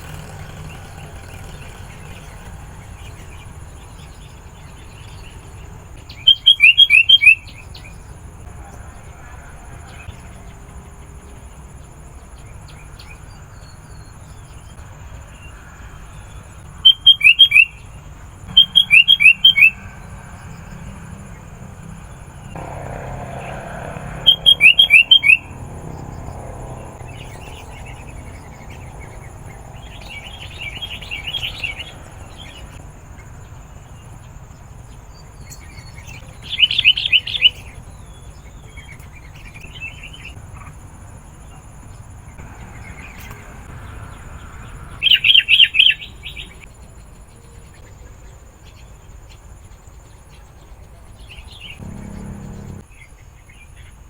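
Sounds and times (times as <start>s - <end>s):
soft bird chattering: 18.6s - 20.0s.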